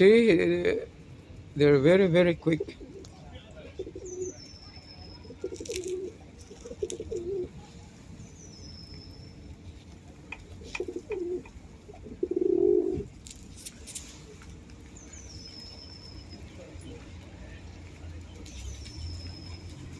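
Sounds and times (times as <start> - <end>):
pigeons cooing: 2.4 - 4.5, 5.2 - 7.7, 10.3 - 13.1
small bird chirp: 2.8 - 11.5, 13.6 - 17.1, 18.1 - 19.9.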